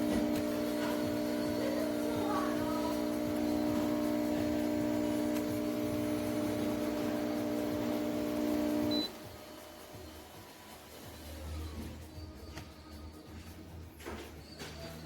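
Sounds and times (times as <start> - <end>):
espresso machine pump humming: 0.0 - 11.3.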